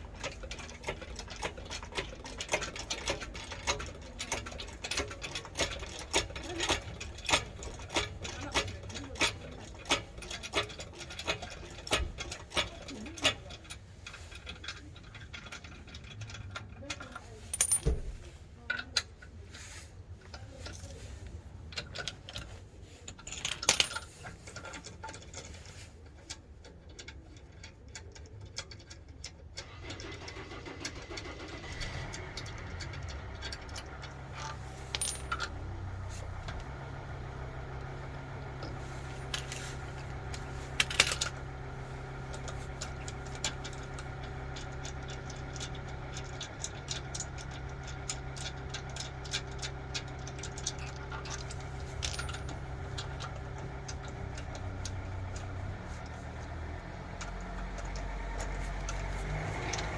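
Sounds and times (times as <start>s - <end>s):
sharp metallic clinks: 51.2s - 53.4s.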